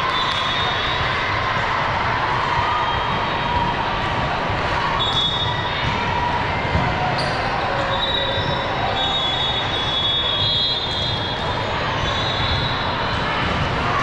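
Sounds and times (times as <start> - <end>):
din of busy gym: 0.0 - 14.0
court shoes squeaking: 6.7 - 13.6.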